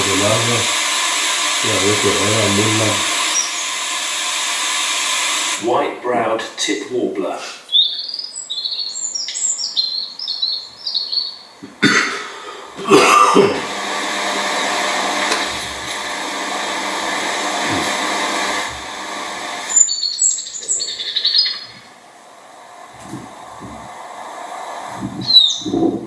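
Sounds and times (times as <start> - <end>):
steady rushing noise: 0.0 - 6.3, 12.8 - 19.8, 22.0 - 26.0
bird high chirps: 3.2 - 3.8, 7.6 - 11.7, 19.7 - 22.0, 25.2 - 25.8.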